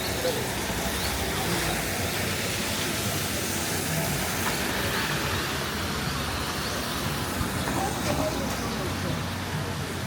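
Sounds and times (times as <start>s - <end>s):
rain hiss: 0.0s - 10.0s
traffic on wet streets: 0.0s - 10.0s.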